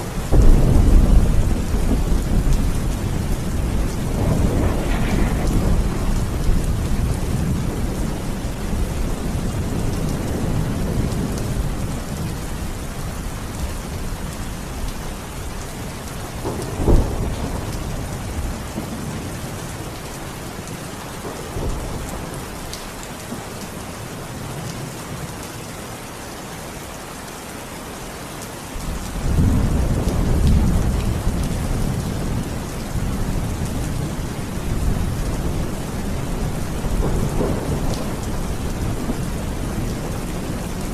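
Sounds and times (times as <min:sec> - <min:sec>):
heavy rain: 0:00.0 - 0:40.9
rolling thunder: 0:00.2 - 0:12.7, 0:16.3 - 0:19.8, 0:28.8 - 0:40.9.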